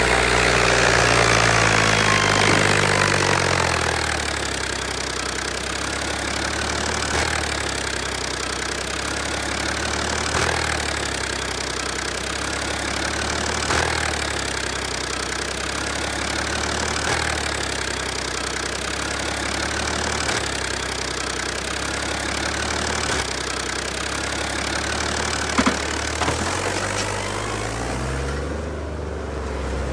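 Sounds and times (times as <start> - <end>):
tractor engine running: 0.0 - 29.9
sharp knocks: 25.6 - 27.2.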